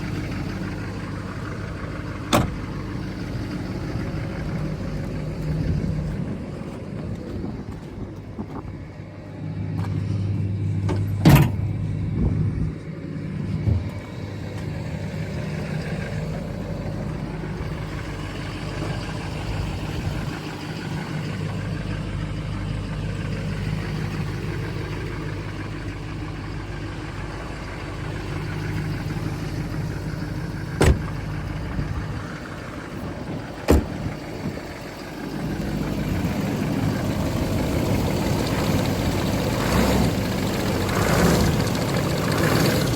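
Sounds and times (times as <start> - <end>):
pickup engine idling: 0.0 - 42.9
sharp knocks or slams: 30.8 - 31.2, 33.7 - 34.0.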